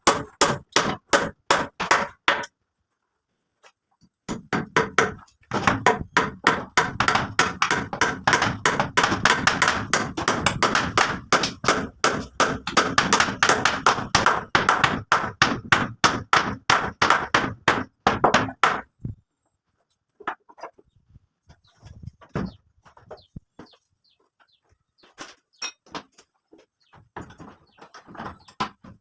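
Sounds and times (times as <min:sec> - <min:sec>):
hand tool striking wood: 0:00.0 - 0:02.5, 0:04.3 - 0:18.9.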